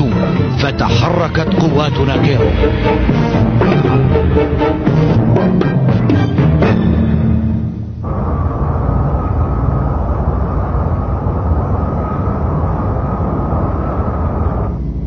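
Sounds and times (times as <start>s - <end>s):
music: 0.0s - 8.1s
spaceship engines rumbling: 0.0s - 15.0s.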